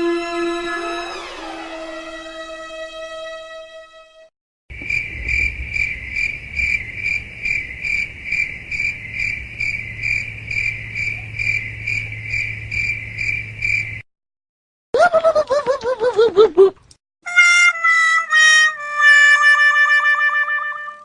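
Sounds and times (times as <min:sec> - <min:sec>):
crickets chirping: 0:04.7 - 0:14.0.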